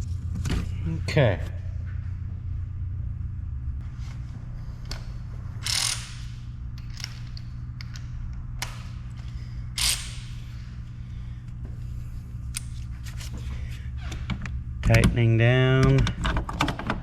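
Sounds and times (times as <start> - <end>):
steady low hum: 0.0 - 17.0
ratchet wrench ratcheting: 5.6 - 8.0, 9.8 - 10.4.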